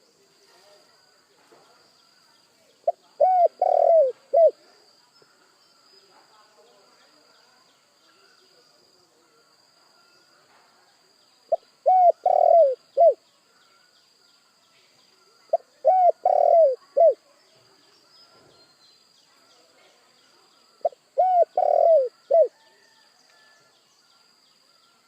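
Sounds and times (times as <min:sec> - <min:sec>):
faint bird chirping: 0:00.0 - 0:25.0
dove cooing: 0:02.8 - 0:04.6, 0:11.5 - 0:13.2, 0:15.5 - 0:17.2, 0:20.8 - 0:23.0.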